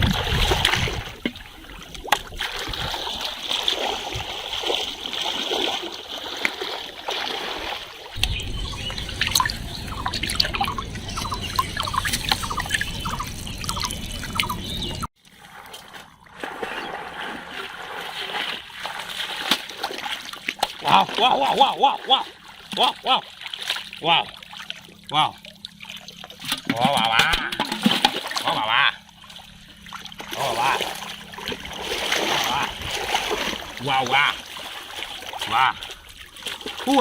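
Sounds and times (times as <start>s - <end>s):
water trickling and splashing: 0.0s - 37.0s
low rumble: 8.2s - 15.1s.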